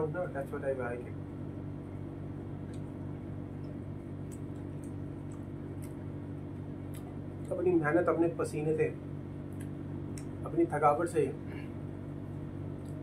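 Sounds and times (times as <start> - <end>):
steady low hum: 0.0 - 13.0
soft mouth clicks chewing: 3.6 - 6.0, 6.8 - 7.6.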